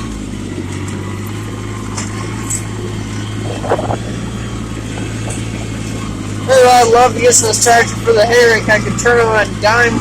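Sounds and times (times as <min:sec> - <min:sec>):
tractor diesel engine running: 0:00.0 - 0:10.0
brief rattle: 0:03.4 - 0:04.1.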